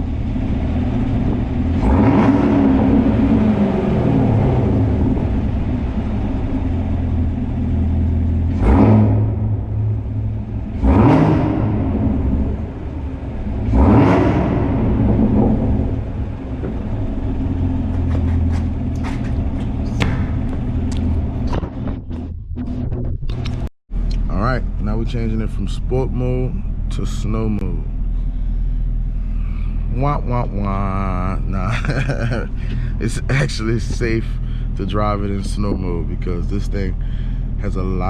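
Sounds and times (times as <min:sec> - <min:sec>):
car engine idling with deep rumble: 0:00.0 - 0:38.0
engine revving: 0:00.0 - 0:38.0.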